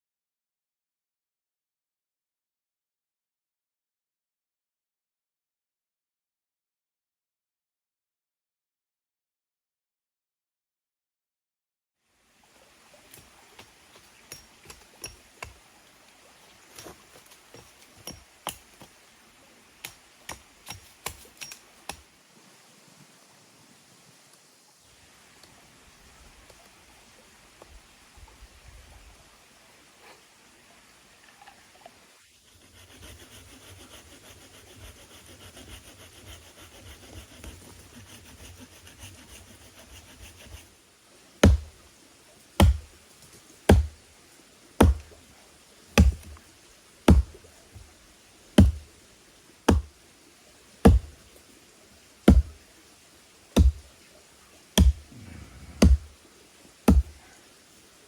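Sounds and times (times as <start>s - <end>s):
faint background noise: 12.0s - 58.0s
sharp knocks with low thump: 41.4s - 41.7s, 42.6s - 42.9s, 43.7s - 44.0s, 44.8s - 45.1s, 46.0s - 46.4s, 47.1s - 47.4s, 48.6s - 48.8s, 49.7s - 49.9s, 50.9s - 51.2s, 52.3s - 52.5s, 53.6s - 53.8s, 54.8s - 55.1s, 55.8s - 56.1s, 56.9s - 57.2s.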